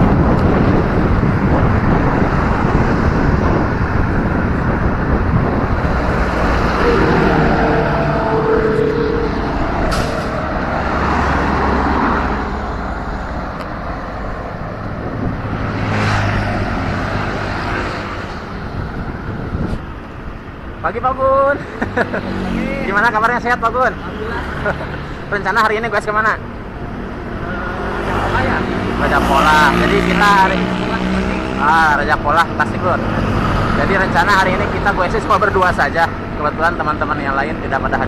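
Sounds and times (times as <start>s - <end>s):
wind rushing over microphone: 0.0s - 21.1s
motor vehicles passing: 0.0s - 38.0s
road traffic: 0.0s - 38.0s.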